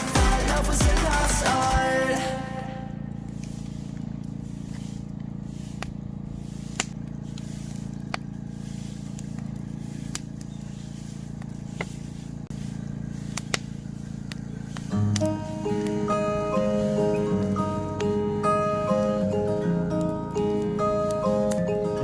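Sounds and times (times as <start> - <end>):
campfire crackling: 0.0 - 22.0
steady low hum: 0.0 - 22.0
sharp popping of fire: 3.2 - 22.0.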